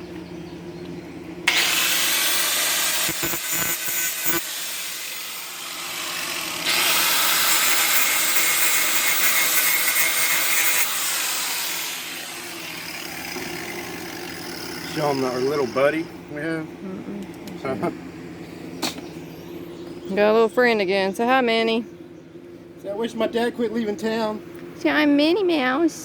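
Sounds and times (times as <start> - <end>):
welder arc crackling and hissing: 1.5 - 9.4.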